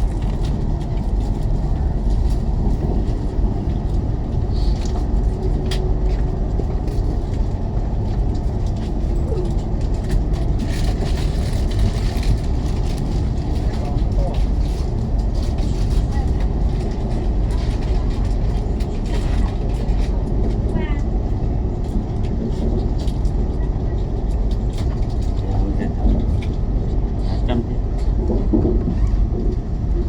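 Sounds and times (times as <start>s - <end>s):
high-speed train rumble inside carriage: 0.0s - 30.0s.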